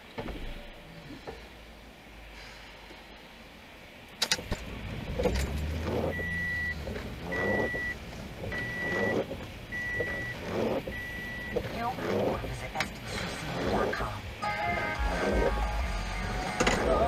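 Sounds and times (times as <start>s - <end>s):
electronic warning beeper: 6.1s - 12.2s.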